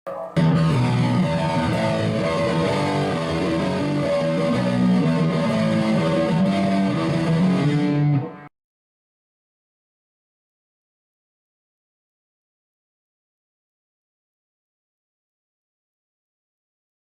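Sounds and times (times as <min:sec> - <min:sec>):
guitar intro music: 0:00.1 - 0:08.5.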